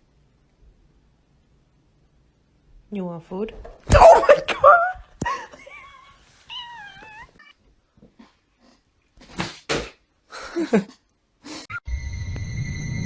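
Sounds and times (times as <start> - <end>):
pet crying: 5.7 - 7.6.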